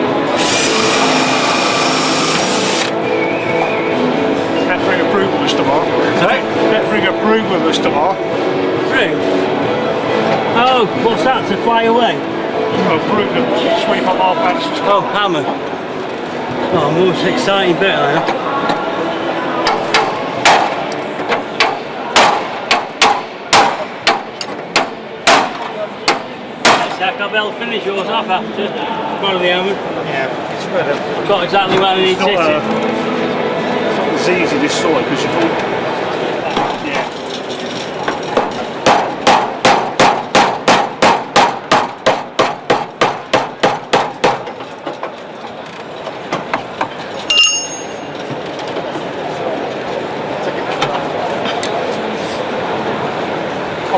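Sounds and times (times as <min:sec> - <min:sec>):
hammer striking steel panel: 0:21.6 - 0:27.0, 0:38.8 - 0:44.5
hammer striking chisel on steel: 0:47.3 - 0:48.1
ringing metallic clang: 0:47.3 - 0:48.2.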